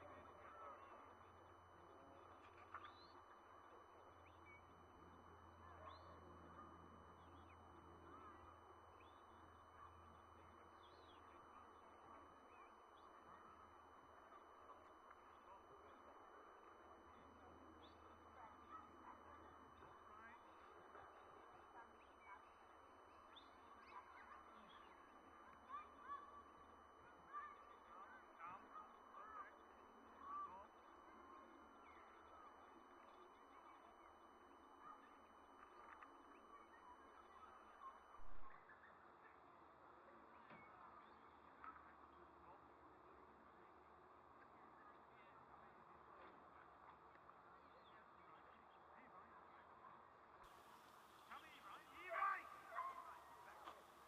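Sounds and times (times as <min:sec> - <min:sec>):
faint bird chirps: 0:02.4 - 0:04.9, 0:05.6 - 0:06.2, 0:07.1 - 0:14.6, 0:21.7 - 0:26.3.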